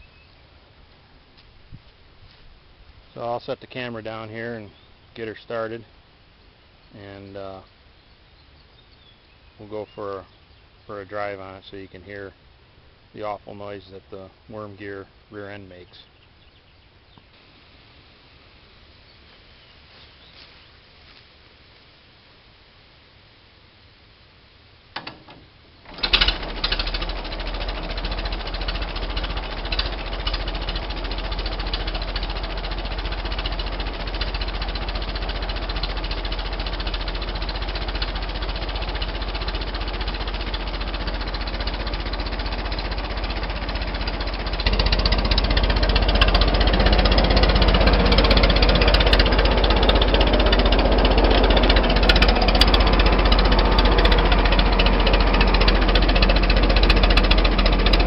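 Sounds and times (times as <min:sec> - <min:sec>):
tractor engine starting and running: 0:00.0 - 0:06.0, 0:10.9 - 0:15.3, 0:24.9 - 0:58.0.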